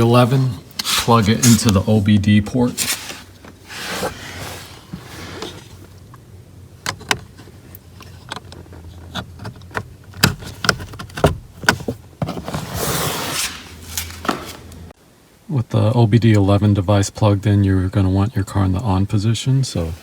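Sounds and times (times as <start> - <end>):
rustling: 0.0 - 15.0.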